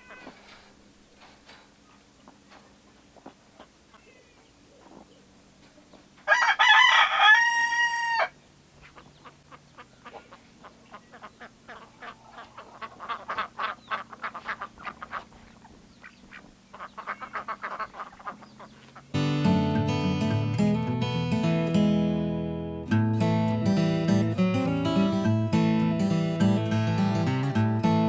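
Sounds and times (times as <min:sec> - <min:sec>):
rooster crowing: 0:06.2 - 0:08.4.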